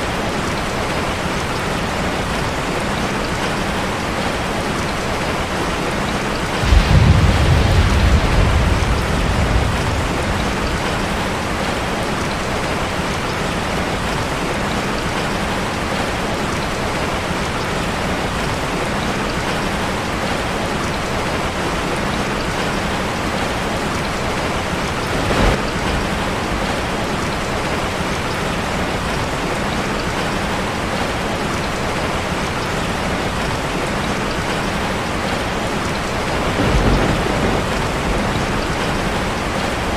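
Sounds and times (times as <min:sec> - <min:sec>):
heavy rain on metal roof: 0:00.0 - 0:39.9
thunder rumbling: 0:04.3 - 0:14.7, 0:21.1 - 0:29.3, 0:35.3 - 0:39.9.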